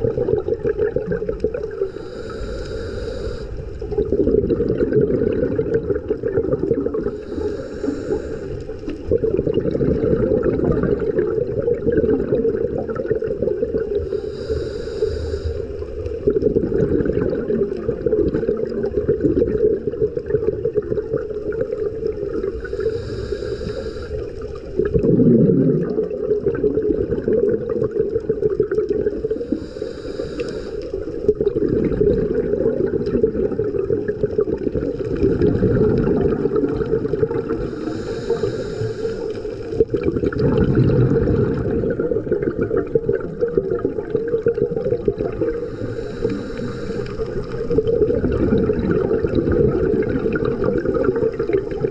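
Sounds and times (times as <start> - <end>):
exhaled bubbles rushing: 0.0 - 2.4, 3.6 - 14.6, 15.6 - 29.8, 30.9 - 51.9
regulator hissing inhales: 1.8 - 3.8, 7.1 - 9.0, 13.9 - 16.1, 22.5 - 24.7, 29.2 - 31.2, 37.6 - 39.8, 45.5 - 47.9.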